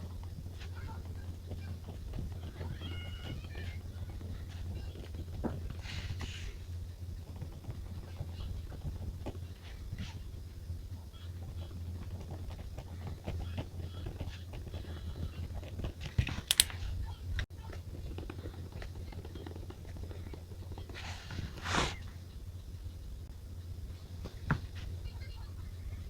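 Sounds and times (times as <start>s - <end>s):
pen tapping and scratching paper: 11.4s - 16.7s.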